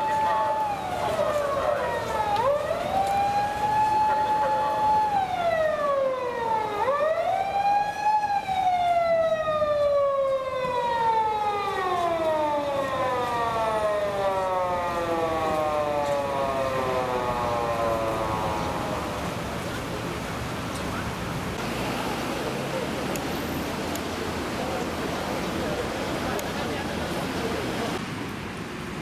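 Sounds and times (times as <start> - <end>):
police siren wailing: 0.0 - 20.3.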